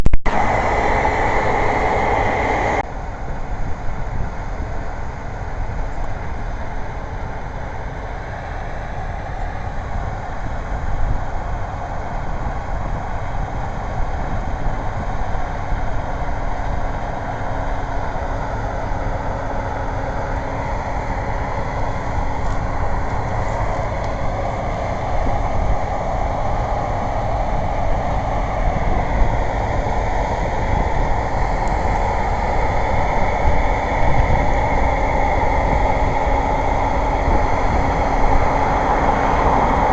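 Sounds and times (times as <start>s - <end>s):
combine harvester drone: 0.0s - 39.9s.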